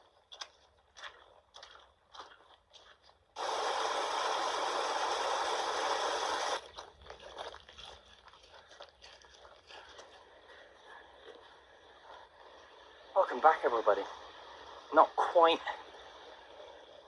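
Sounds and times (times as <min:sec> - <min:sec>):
heavy rain hissing: 0:03.4 - 0:06.6.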